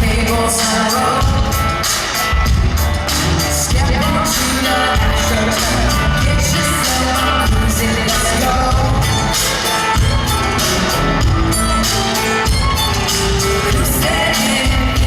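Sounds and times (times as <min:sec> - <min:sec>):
person singing: 0:00.0 - 0:02.2, 0:03.5 - 0:15.0
live country pop band: 0:00.0 - 0:15.0.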